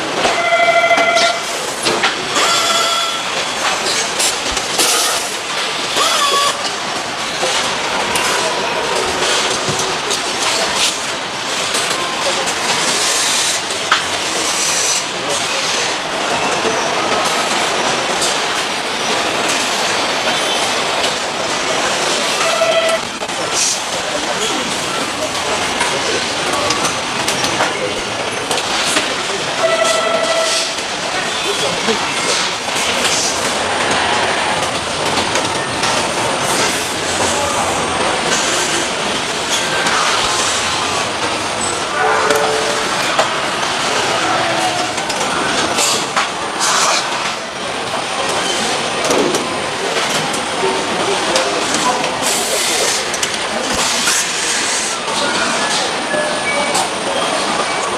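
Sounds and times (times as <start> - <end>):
factory machinery clatter: 0.0 - 57.9
high-pitched machine squeals: 2.4 - 3.3, 6.0 - 6.7.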